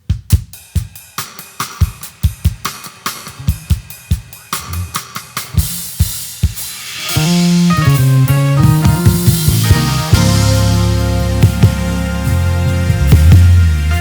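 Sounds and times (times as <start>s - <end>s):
drum kit groove: 0.0s - 14.0s
full band playing: 4.5s - 14.0s.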